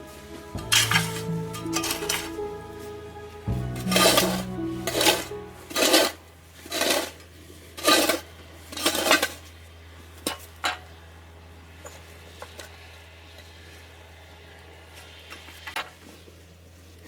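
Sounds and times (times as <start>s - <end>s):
rough gritty scraping: 3.8s - 9.4s.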